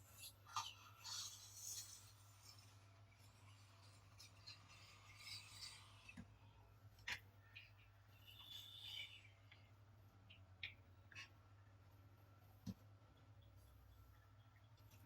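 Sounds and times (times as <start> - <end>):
toy cars scraping: 0.6 - 6.2.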